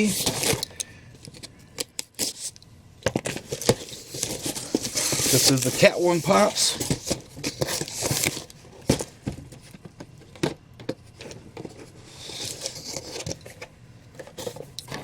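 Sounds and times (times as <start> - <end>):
packing material crinkling: 3.2 - 9.0.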